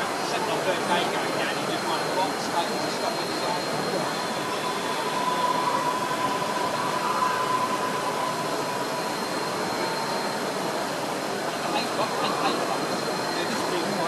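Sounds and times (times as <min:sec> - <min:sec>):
busy exhibition hall noise: 0:00.0 - 0:14.0
thin steady whine: 0:00.0 - 0:14.0.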